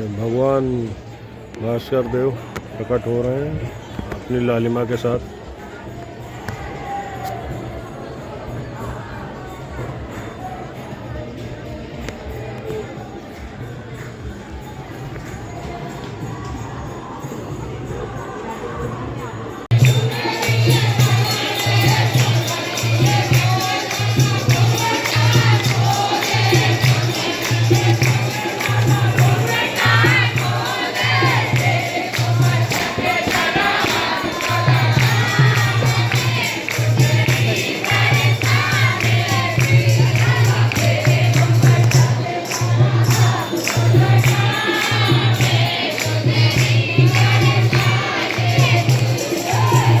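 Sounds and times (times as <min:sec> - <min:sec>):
jingling hand percussion: 0:00.0 - 0:50.0
group singing a chant: 0:19.7 - 0:50.0.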